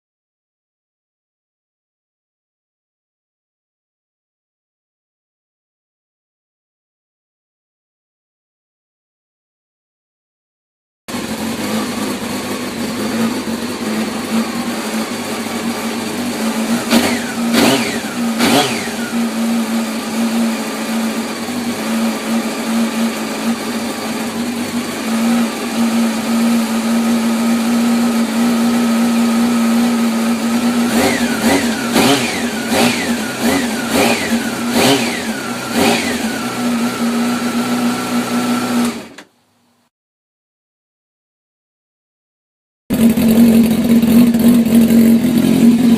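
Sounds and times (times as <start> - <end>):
motorcycle engine idling: 11.1 - 38.6, 42.9 - 45.9
sharp throttle blips: 13.0 - 20.8, 29.4 - 39.2.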